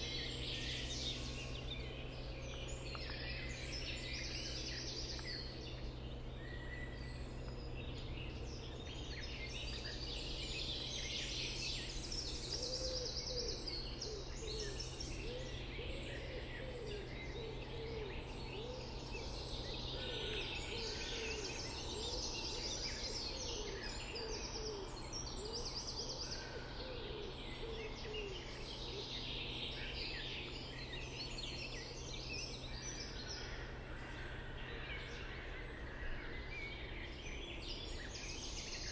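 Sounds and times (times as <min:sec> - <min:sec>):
songbirds trilling and warbling: 0:00.0 - 0:38.9.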